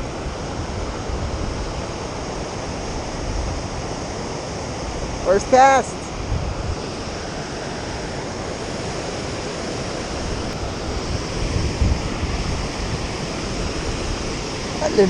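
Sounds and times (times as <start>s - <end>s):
water rushing: 0.0s - 15.0s
wind rumbling on microphone: 0.0s - 15.0s.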